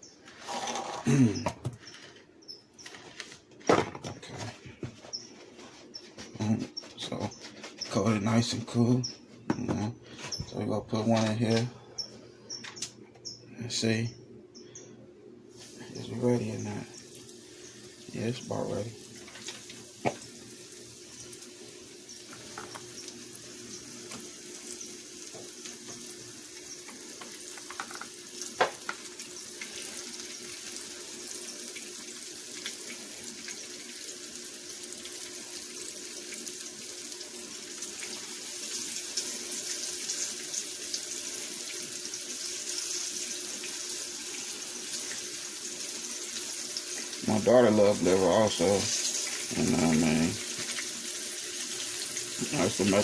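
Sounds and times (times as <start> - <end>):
liver sizzling in oil: 17.0 - 49.6, 50.3 - 52.9.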